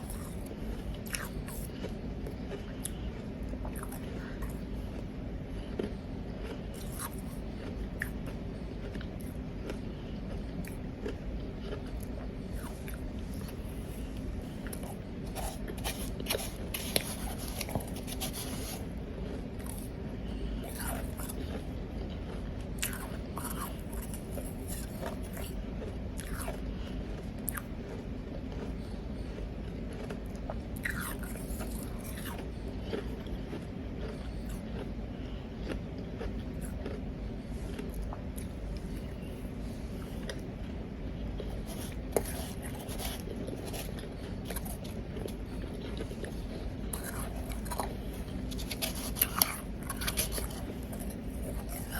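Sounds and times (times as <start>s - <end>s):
ice being chewed: 0.0s - 51.9s
low background hum: 0.0s - 51.9s.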